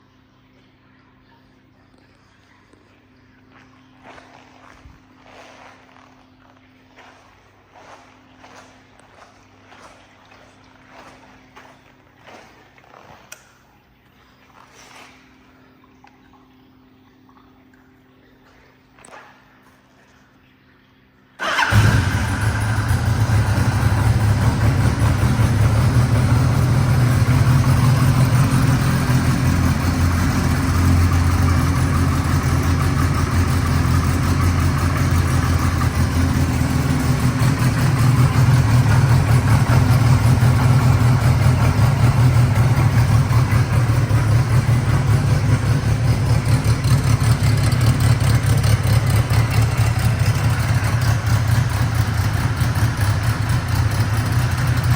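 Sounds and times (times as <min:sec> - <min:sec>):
motorcycle engine idling: 0:21.4 - 0:54.9.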